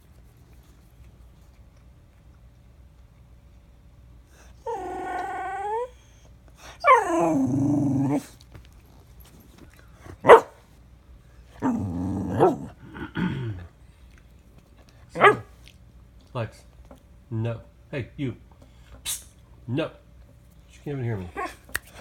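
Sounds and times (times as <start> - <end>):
dog whining: 4.3 - 8.4, 11.6 - 13.7, 21.3 - 21.7
dog barking: 10.2 - 10.6, 15.1 - 15.6.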